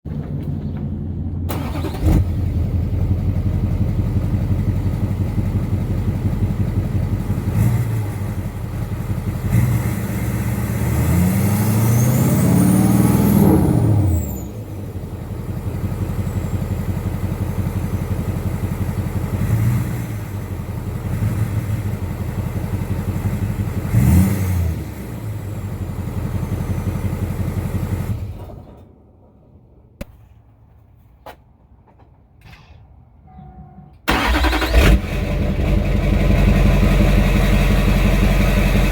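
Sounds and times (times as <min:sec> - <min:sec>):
diesel engine idling and revving: 0:00.1 - 0:28.8, 0:34.1 - 0:38.9.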